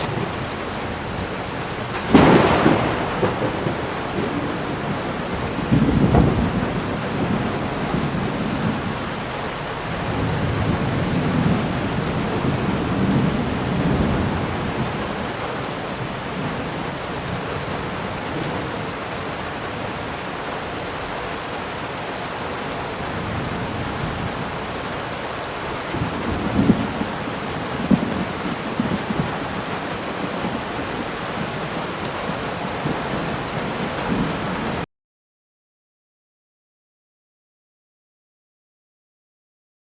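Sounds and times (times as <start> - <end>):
heavy rain and wind: 0.0 - 34.9
loud low booms: 1.9 - 6.7.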